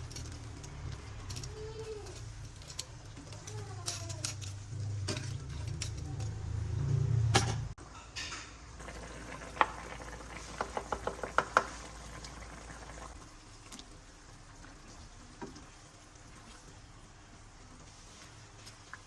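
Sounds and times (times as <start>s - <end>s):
food sizzling in a pan: 8.8s - 18.5s
utensil knocking against pan: 10.6s - 11.8s.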